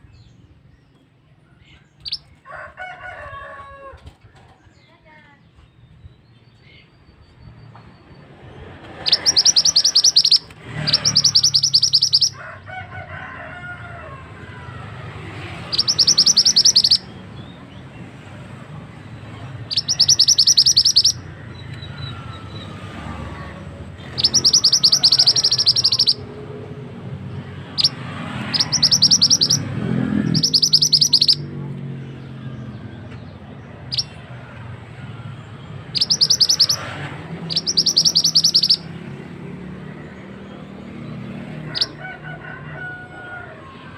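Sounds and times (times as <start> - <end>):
songbird rattling calls: 8.8 - 12.4, 15.7 - 17.2, 19.6 - 21.4, 24.0 - 26.3, 27.7 - 31.4, 35.9 - 38.9, 41.7 - 42.0.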